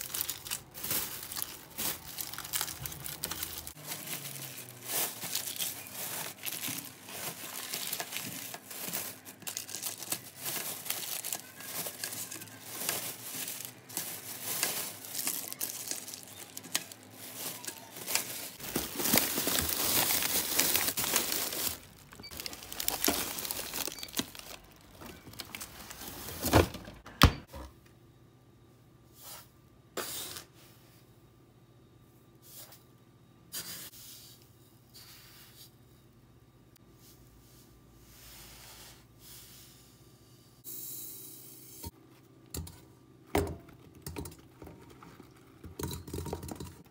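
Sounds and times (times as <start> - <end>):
crinkly material rustling: 0.0 - 27.0.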